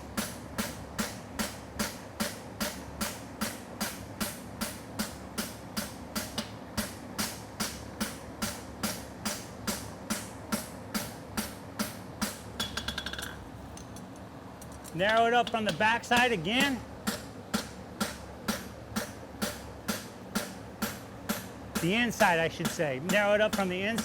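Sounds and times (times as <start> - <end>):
fan hum: 0.0 - 24.0
hammer striking horseshoe on anvil: 15.1 - 24.0.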